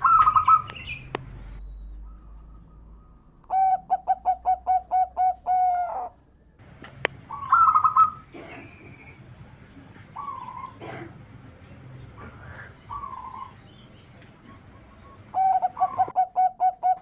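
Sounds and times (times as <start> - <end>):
dove cooing: 0.0 - 0.7, 3.5 - 6.2, 7.2 - 9.1, 10.2 - 11.2, 12.2 - 13.6, 14.4 - 17.0
loud warbled bird call: 0.0 - 6.2, 7.2 - 9.3, 10.1 - 11.4, 12.2 - 17.0.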